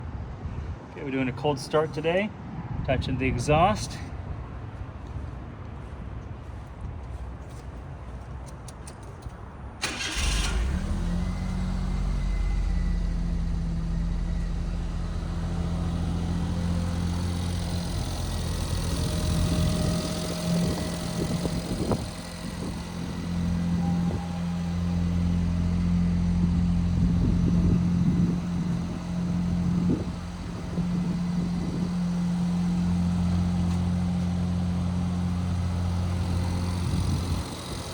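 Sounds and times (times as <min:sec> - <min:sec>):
car engine idling: 0:09.8 - 0:37.9
starter motor cranking: 0:09.8 - 0:37.9.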